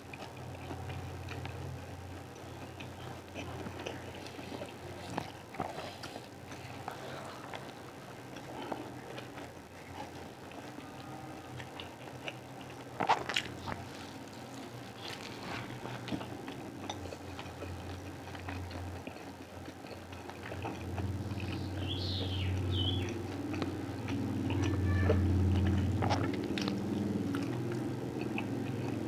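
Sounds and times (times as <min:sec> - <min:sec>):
chewing and biting food: 0:00.0 - 0:29.0
low hum: 0:00.0 - 0:29.0.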